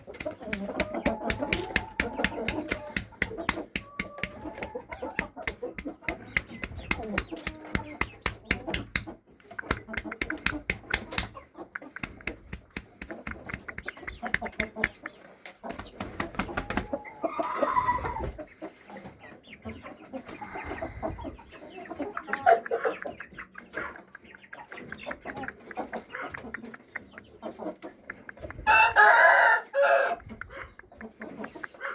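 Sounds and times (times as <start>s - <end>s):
small clicks and taps: 0.0s - 15.2s
roosters clucking and calling: 0.0s - 31.9s
rooster crowing: 28.7s - 30.2s.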